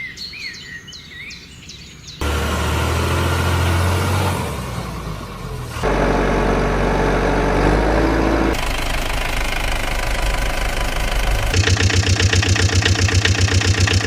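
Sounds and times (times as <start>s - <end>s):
heavy engine running: 2.2s - 14.0s
rhythmic knocking engine idle: 8.5s - 14.0s.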